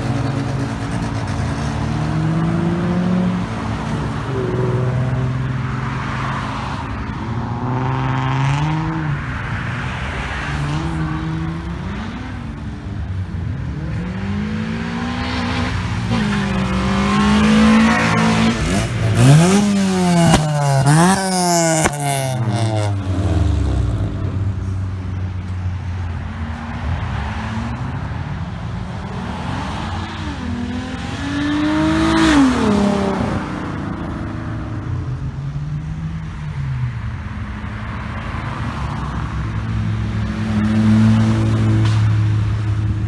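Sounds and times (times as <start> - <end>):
car accelerating hard: 0.0 - 35.4, 37.8 - 43.0
car engines driving off: 0.0 - 43.0
exhaust cracks: 15.4 - 26.1.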